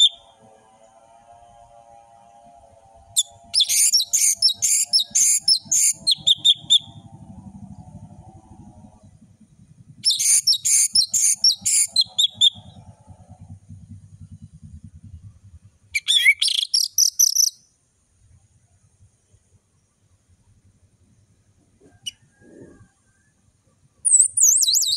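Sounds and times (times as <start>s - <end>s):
thrush singing: 2.1s - 9.2s.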